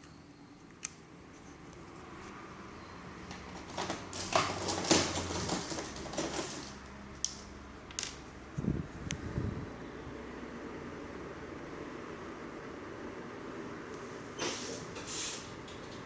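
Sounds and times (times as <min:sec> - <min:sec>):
small hard parts rattling: 0:03.5 - 0:06.8.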